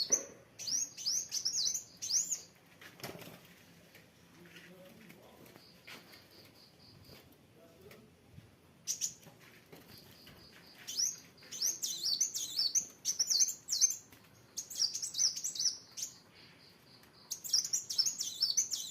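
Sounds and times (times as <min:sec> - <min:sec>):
sunbird singing: 0:00.0 - 0:02.6, 0:09.9 - 0:18.9.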